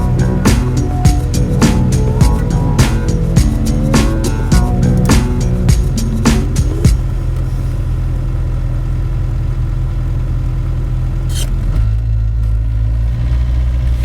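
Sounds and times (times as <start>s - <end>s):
sharp knocks: 0.0s - 7.1s
diesel engine running: 0.0s - 14.0s.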